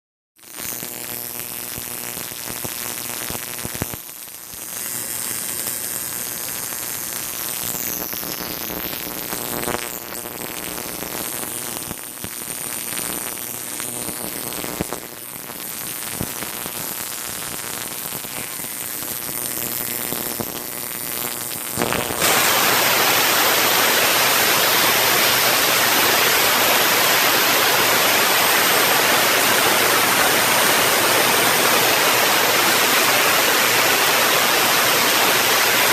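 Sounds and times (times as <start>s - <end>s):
resonant static: 0.4s - 35.9s
even hiss like heavy rain: 22.2s - 35.9s.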